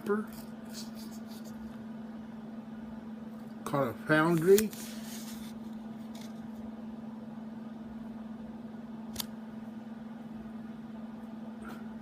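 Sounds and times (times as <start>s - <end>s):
low background hum: 0.0s - 12.0s
sharp click: 9.1s - 9.3s.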